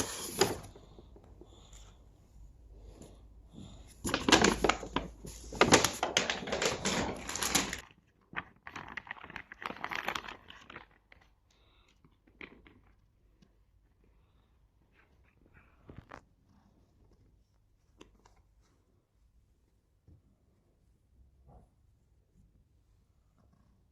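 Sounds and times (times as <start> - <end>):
crinkling and rustling: 0.0 - 2.0, 2.8 - 14.0, 14.8 - 19.1.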